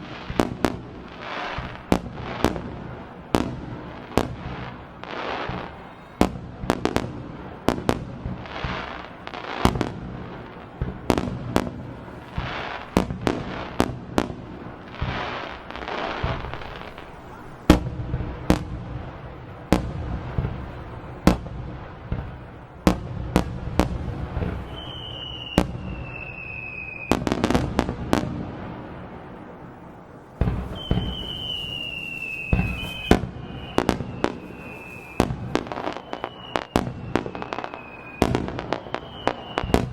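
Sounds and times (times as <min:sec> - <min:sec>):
fireworks bangs and booms: 0:00.0 - 0:39.9
high falling whistle: 0:24.5 - 0:27.2, 0:30.6 - 0:39.9.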